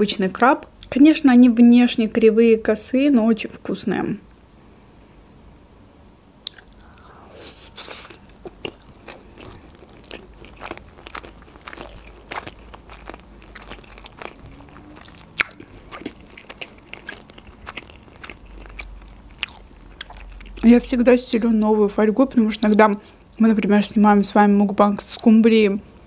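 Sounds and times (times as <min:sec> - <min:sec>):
crisp chewing crunches: 0:06.4 - 0:20.7.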